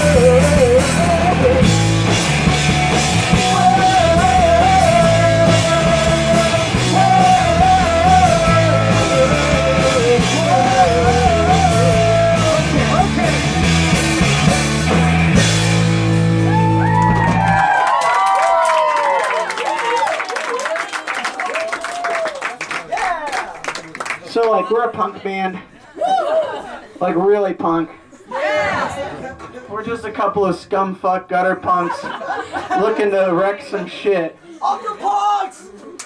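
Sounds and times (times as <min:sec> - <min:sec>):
punk rock band playing: 0:00.0 - 0:17.9
crowd shouting: 0:16.4 - 0:23.6, 0:25.9 - 0:26.9, 0:28.3 - 0:29.5.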